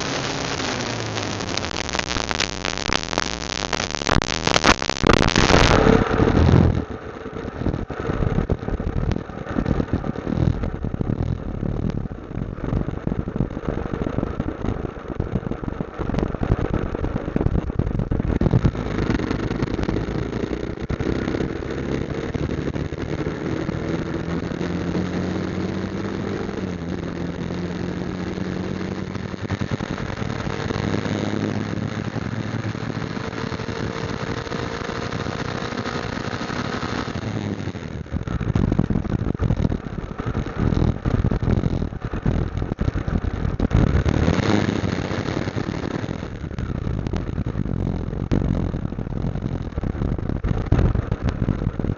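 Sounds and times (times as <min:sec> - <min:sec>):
motorcycle engine running: 0:00.0 - 0:51.9
wind buffeting microphone: 0:05.1 - 0:24.6, 0:38.0 - 0:51.9.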